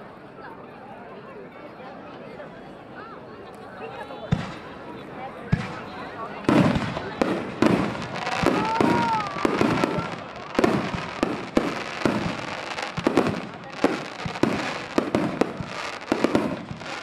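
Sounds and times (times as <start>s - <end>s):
fireworks bursting: 4.3s - 17.0s.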